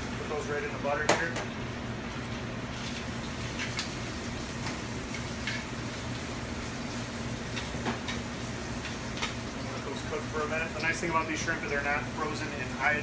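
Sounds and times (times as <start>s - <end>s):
shrimp sizzling in a pan: 2.2s - 13.0s.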